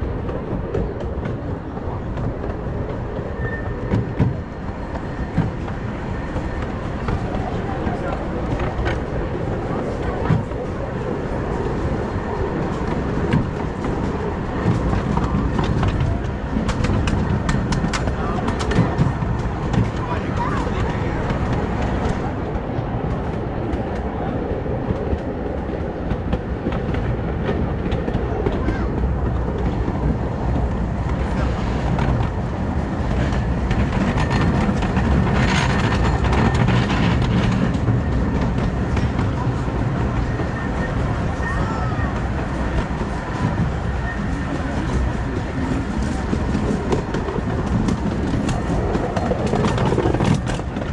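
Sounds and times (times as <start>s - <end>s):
small train rumbling on track: 0.0s - 50.9s
wheels clicking over rail joints: 11.8s - 24.2s, 24.8s - 50.9s.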